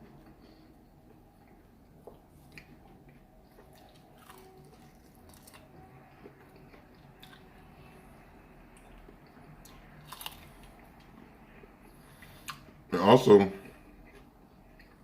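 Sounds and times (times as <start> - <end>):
person chewing with mouth clicks: 1.4 - 5.7.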